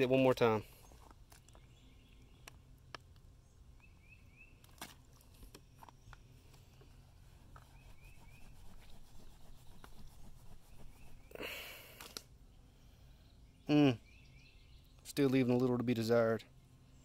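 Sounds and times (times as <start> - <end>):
bird rising chirps: 7.6 - 11.4.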